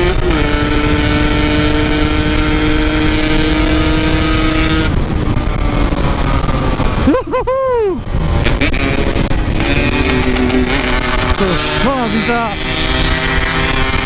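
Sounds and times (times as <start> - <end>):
wind noise: 0.0 - 14.0
two-stroke motorcycle engine: 8.2 - 14.0.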